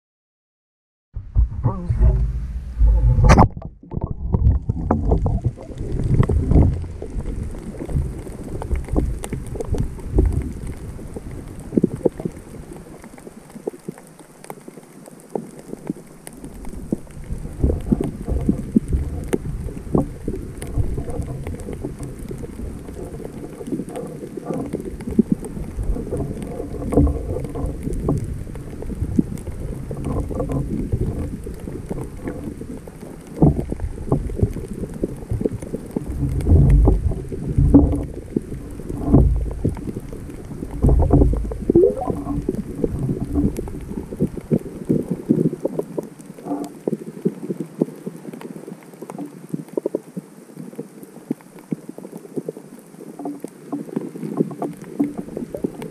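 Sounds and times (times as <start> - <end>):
rumbling surges: 1.2 - 12.7
underwater clicks and knocks: 1.2 - 50.0, 53.2 - 55.9
muffled underwater sloshing rush: 1.2 - 55.9.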